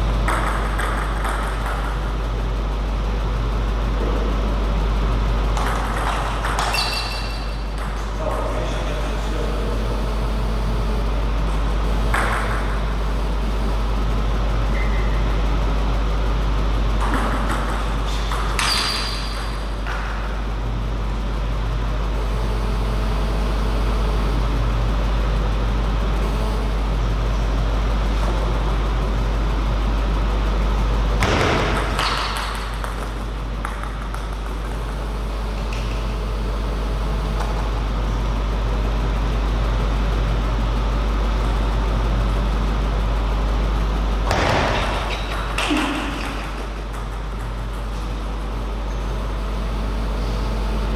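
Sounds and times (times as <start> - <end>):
low hall hum: 0.0 - 50.9
table tennis knocks and clicks: 0.2 - 2.0, 5.6 - 8.2, 17.0 - 20.1, 31.2 - 34.9, 44.3 - 48.0.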